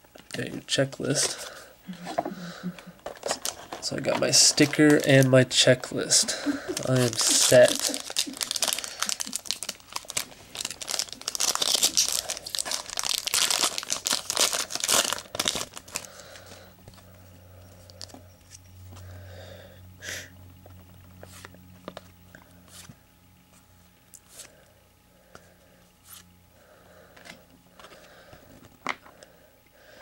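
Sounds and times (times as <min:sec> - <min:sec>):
faint steady hum: 0:00.0 - 0:30.0
wrapper tearing and crinkling: 0:03.1 - 0:05.4, 0:06.3 - 0:16.6.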